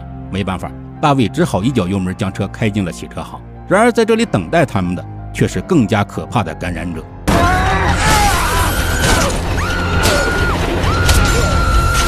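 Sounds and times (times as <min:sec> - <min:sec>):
film music score: 0:00.0 - 0:12.0
sharp crashes and smashes: 0:07.3 - 0:12.0.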